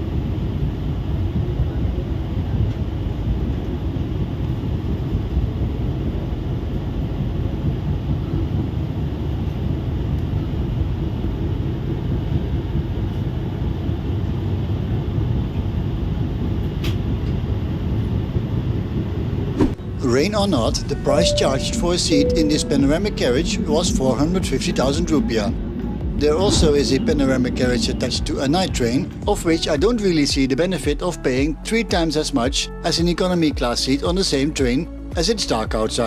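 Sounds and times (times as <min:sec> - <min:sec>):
wind rushing past: 0:17.8 - 0:30.4
train wheels rumbling on track: 0:22.6 - 0:30.6.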